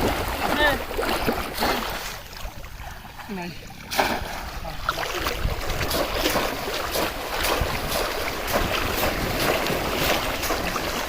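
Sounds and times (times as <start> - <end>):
water splashing and churning: 0.0 - 11.0
wind on microphone: 3.6 - 11.0.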